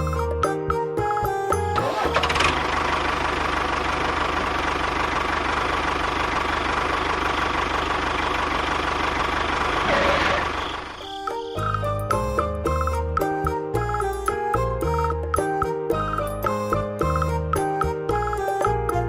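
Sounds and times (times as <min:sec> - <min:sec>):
small motor rattling: 0:01.8 - 0:11.1.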